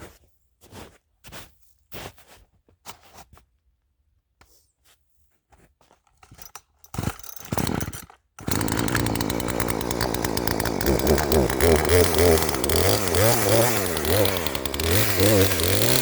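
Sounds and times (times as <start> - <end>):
chainsaw running: 7.6 - 16.0.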